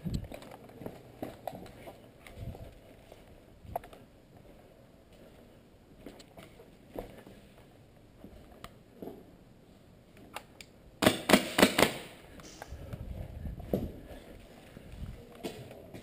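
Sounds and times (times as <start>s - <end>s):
airsoft gun shots: 11.0s - 12.6s
low rumbling movement noise: 12.5s - 15.3s.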